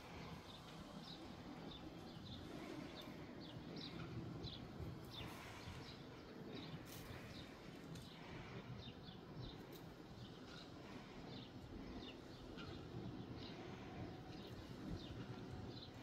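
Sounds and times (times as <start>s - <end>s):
low countryside background noise: 0.0s - 16.0s
small birds chirping: 0.0s - 16.0s.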